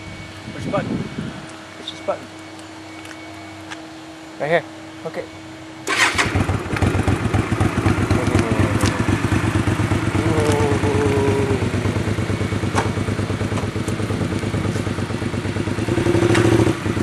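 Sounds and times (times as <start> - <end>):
motorcycle engine idling: 5.9 - 17.0.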